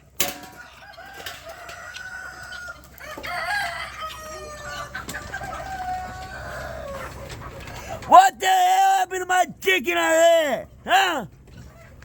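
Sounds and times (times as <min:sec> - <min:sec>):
chickens clucking: 0:00.0 - 0:08.2, 0:10.6 - 0:12.0
rooster crowing: 0:00.6 - 0:07.2.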